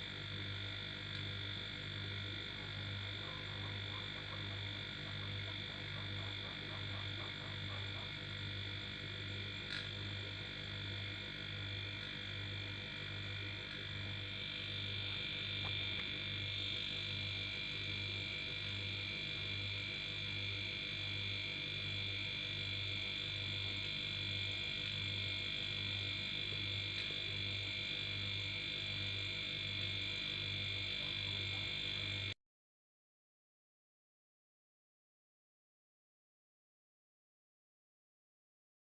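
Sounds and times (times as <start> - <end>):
air compressor humming: 1.4 - 32.3.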